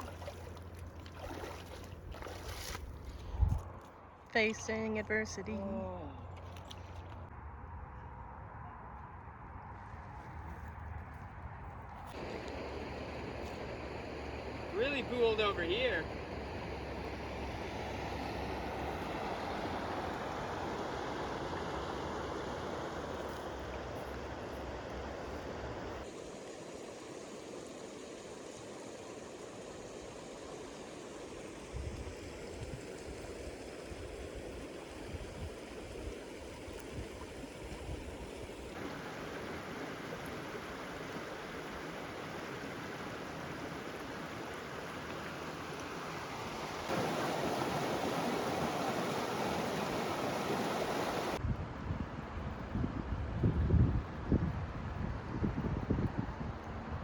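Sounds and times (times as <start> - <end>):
rushing stream water: 0.0 - 3.2, 12.1 - 51.4.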